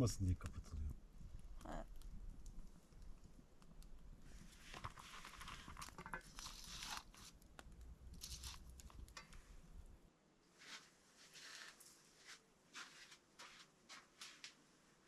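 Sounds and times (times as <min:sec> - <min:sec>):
faint rustling and crinkling: 0:00.4 - 0:15.0.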